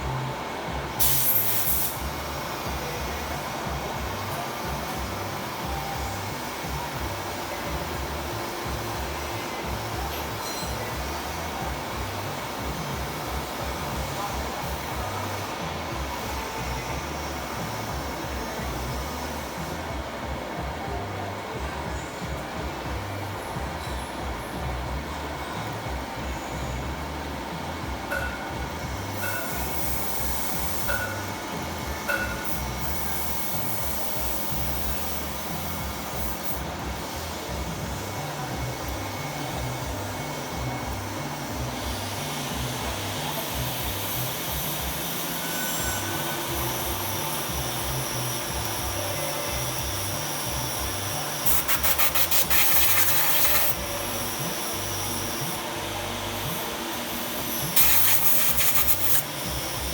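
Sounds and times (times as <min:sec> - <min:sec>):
lathe humming: 0:24.2 - 0:51.5, 0:52.6 - 0:59.9
lathe cutting with rasping chatter: 0:38.7 - 0:59.9.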